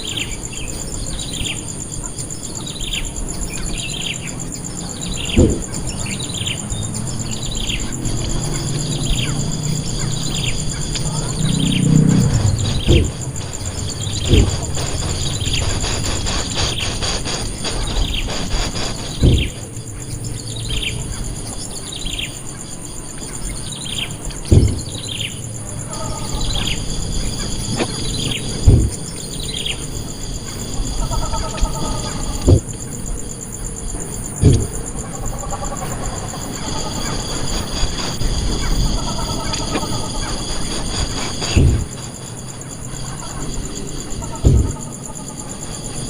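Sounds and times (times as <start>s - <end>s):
high-pitched insect drone: 0.0s - 46.0s
dull thumps: 5.3s - 6.0s, 10.3s - 19.8s, 24.4s - 25.1s, 28.6s - 29.2s, 32.4s - 32.8s, 34.4s - 35.0s, 41.4s - 42.0s, 44.4s - 44.9s.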